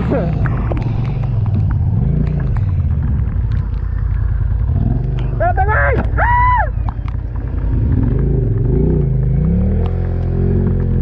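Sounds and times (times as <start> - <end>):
quad bike engine revving: 0.0 - 11.0
person shouting: 5.4 - 6.7.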